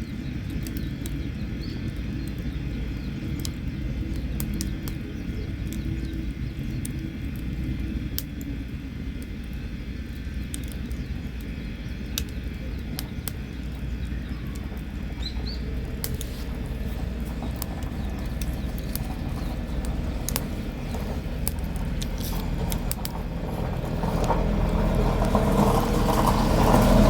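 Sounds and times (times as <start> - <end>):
campfire crackling and popping: 0.0 - 27.0
bird chirping: 12.6 - 27.0.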